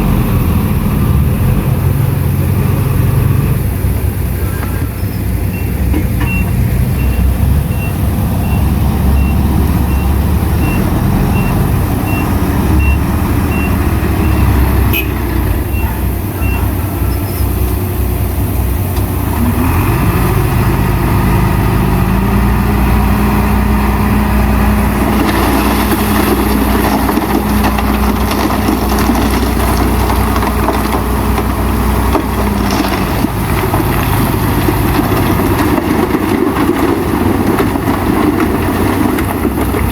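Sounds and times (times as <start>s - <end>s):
heavy machinery diesel engines: 0.0s - 39.9s
reversing alarm beeping: 5.5s - 14.5s.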